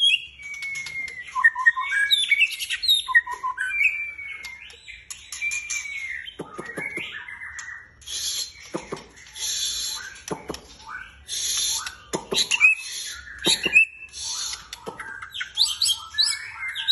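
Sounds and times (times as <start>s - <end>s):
bird singing whistled phrases: 0.0s - 16.9s
harsh raspy bird chatter: 4.1s - 16.9s.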